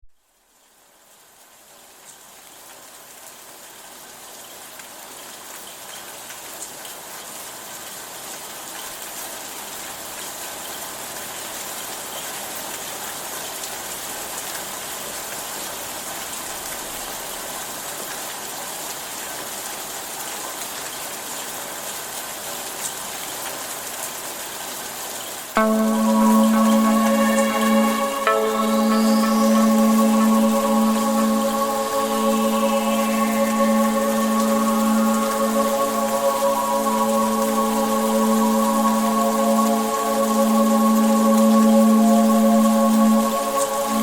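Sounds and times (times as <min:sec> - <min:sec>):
rain on surfaces: 0:00.2 - 0:25.6.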